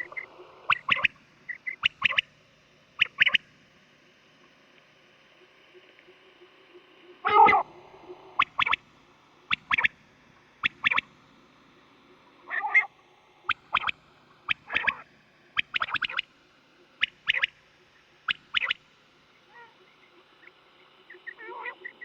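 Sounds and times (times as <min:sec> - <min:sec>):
quail calls: 0:00.0 - 0:02.3, 0:03.0 - 0:03.4, 0:07.2 - 0:07.8, 0:08.4 - 0:08.8, 0:09.5 - 0:10.0, 0:10.6 - 0:11.1, 0:12.5 - 0:12.9, 0:13.5 - 0:13.9, 0:14.5 - 0:15.0, 0:15.6 - 0:16.3, 0:17.0 - 0:17.6, 0:18.3 - 0:18.8, 0:19.5 - 0:20.5, 0:21.1 - 0:22.0.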